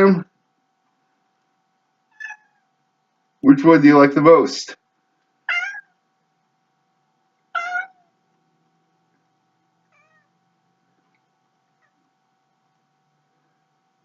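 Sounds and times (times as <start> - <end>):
cat meowing: 2.1 - 2.6, 5.5 - 6.0, 7.5 - 8.1, 9.9 - 10.3.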